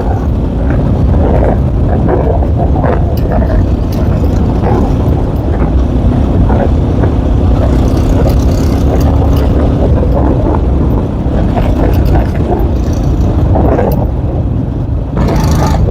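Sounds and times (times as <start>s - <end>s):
scattered clicks: 0.0s - 14.2s
motorcycle engine running: 0.0s - 15.9s
wind rumble on microphone: 0.0s - 15.9s.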